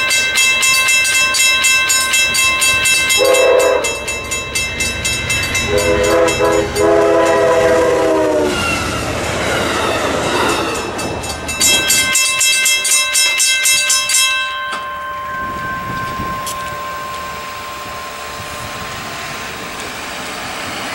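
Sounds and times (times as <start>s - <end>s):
train rushing by: 0.0s - 20.9s
wheels clicking over rail joints: 0.0s - 20.9s
train horn chord: 3.1s - 4.1s, 5.6s - 8.7s.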